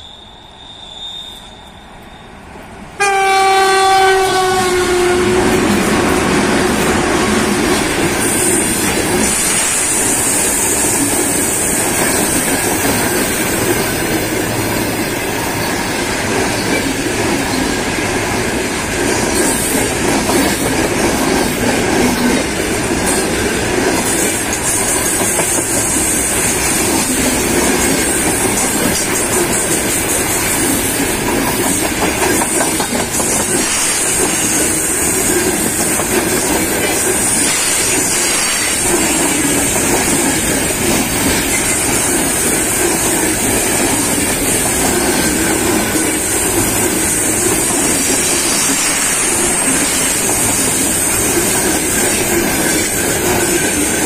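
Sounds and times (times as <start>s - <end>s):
train wheels rumbling on rails: 1.3s - 54.0s
high hiss: 8.1s - 16.0s.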